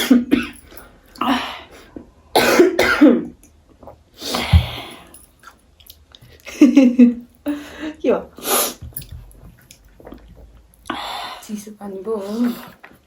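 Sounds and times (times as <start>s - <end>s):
person coughing: 0.0s - 0.6s, 2.4s - 3.3s.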